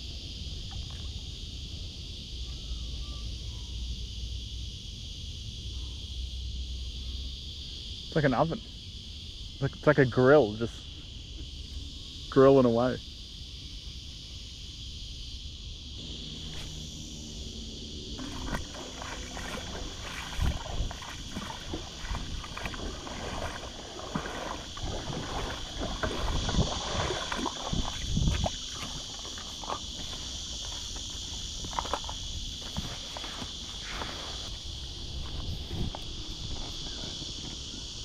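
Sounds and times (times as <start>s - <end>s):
insects buzzing: 0.0s - 38.0s
water sloshing: 16.0s - 34.7s
rowboat knocking: 18.2s - 30.8s.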